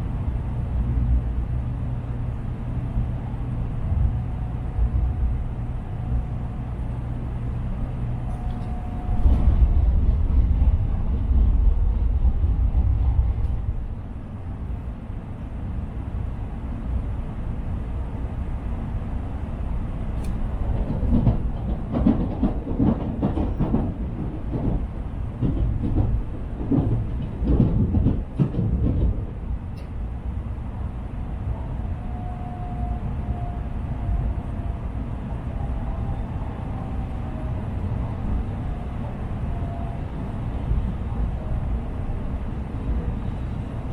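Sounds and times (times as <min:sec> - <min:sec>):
train low rumble: 0:00.0 - 0:43.9
knocks and clunks: 0:20.7 - 0:29.9.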